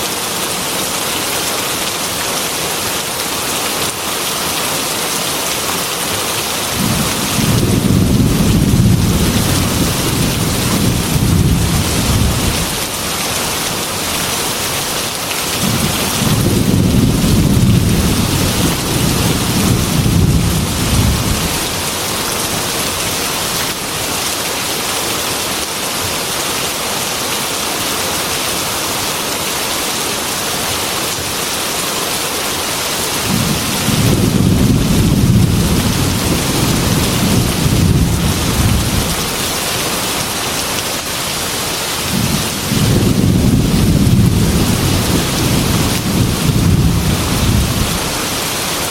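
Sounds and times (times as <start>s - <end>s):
rain on glass window: 6.5s - 23.8s, 33.3s - 41.2s, 42.0s - 48.9s
thunder rolling: 6.8s - 12.7s, 15.6s - 21.7s, 33.3s - 39.2s, 42.1s - 48.0s.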